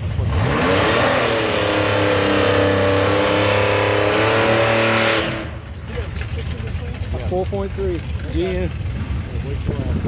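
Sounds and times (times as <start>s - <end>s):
racing car engine revving: 0.1s - 6.0s.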